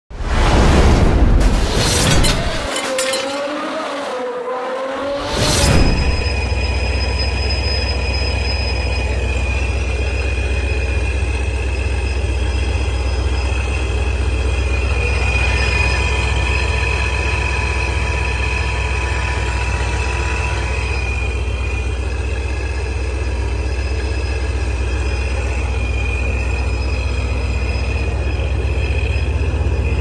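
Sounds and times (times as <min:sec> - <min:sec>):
high supercharger whine: 0:01.8 - 0:30.0
supercharged car engine idling: 0:06.1 - 0:30.0.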